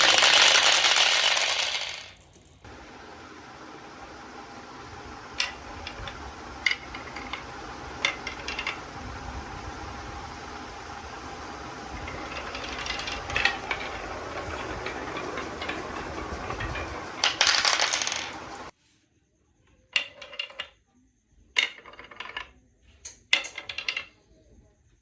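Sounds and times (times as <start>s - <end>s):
marbles clacking together: 0.0s - 2.7s, 5.4s - 9.0s, 10.7s - 18.7s
marbles rolling through a marble run: 0.0s - 2.7s, 3.6s - 18.7s, 19.8s - 20.8s, 21.5s - 24.3s.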